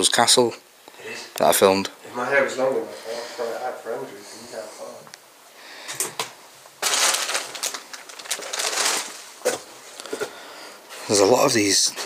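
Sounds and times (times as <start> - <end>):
debris crunching and rustling: 6.8 - 9.8.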